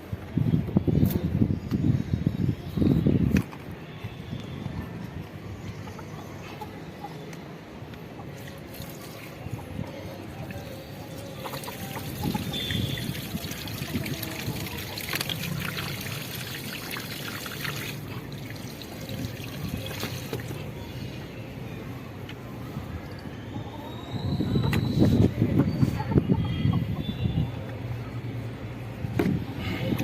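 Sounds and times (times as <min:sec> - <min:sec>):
water trickling from pipe: 0:11.4 - 0:20.7.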